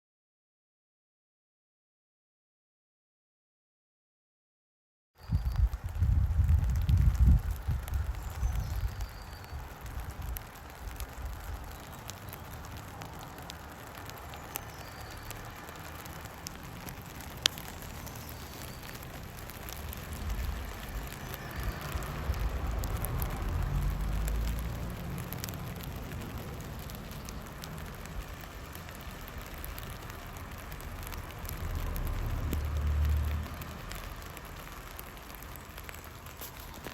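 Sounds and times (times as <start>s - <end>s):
rain pattering on plastic sheet: 5.2s - 36.9s
sharp tick: 5.4s - 36.9s
low rumble: 19.0s - 35.0s.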